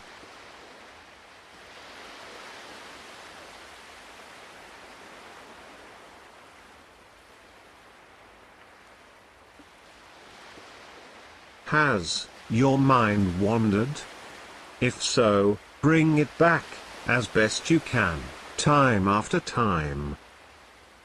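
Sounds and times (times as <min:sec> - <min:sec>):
ocean waves washing: 0:00.0 - 0:21.0.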